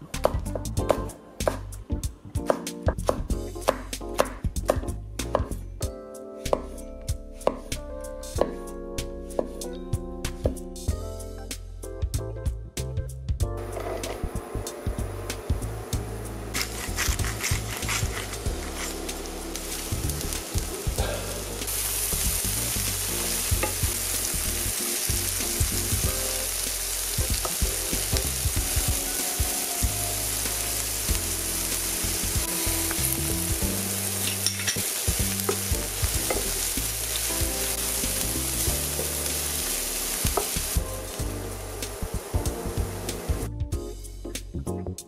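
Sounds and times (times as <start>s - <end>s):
vegetables sizzling in oil: 13.7s - 43.5s.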